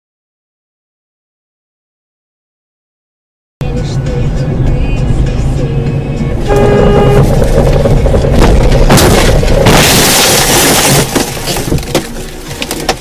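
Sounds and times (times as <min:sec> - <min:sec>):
short steady pitched tone: 0:06.4 - 0:07.4
car crash crunching: 0:06.6 - 0:13.0
debris clattering: 0:07.2 - 0:13.0.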